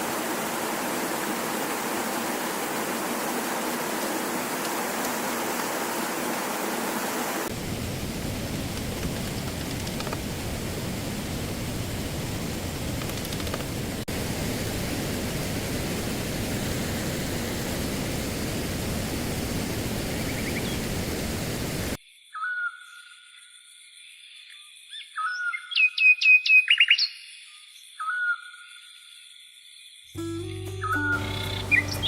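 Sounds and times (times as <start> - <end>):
stream water rushing: 0.0 - 22.0
birds whistling and chirping: 22.4 - 22.9, 25.0 - 27.2, 30.7 - 32.0.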